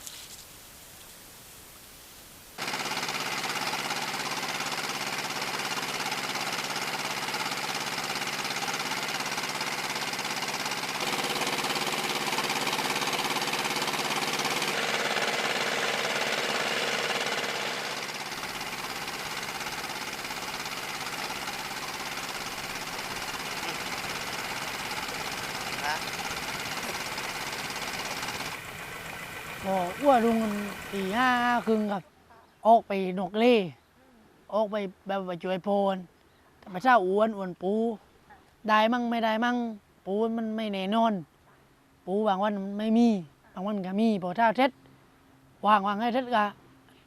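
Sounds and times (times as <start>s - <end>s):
boat engine knocking: 2.6s - 31.7s.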